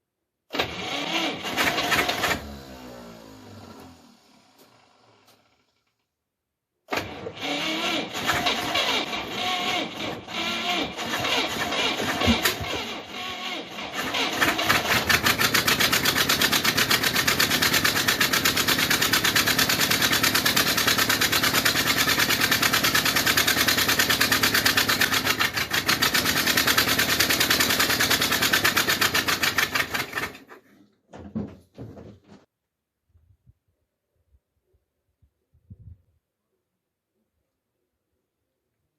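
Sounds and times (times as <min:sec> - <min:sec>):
engine cold start: 0:00.5 - 0:06.0, 0:06.9 - 0:30.6
knocks: 0:31.1 - 0:32.4.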